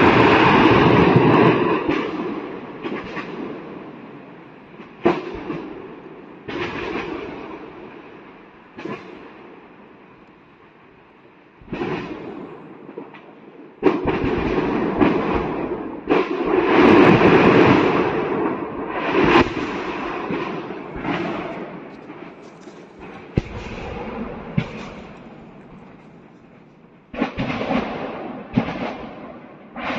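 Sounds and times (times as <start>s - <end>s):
rumbling crackle: 0.0s - 29.9s
sudden bangs and pops: 11.6s - 18.4s, 19.1s - 29.9s
explosions cooking off: 13.8s - 29.9s.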